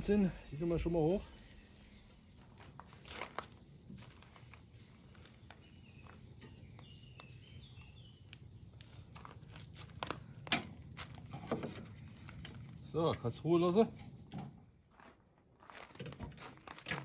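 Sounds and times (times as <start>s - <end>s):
meat grilling over charcoal: 0.0s - 14.3s
bird chirping: 5.0s - 9.1s.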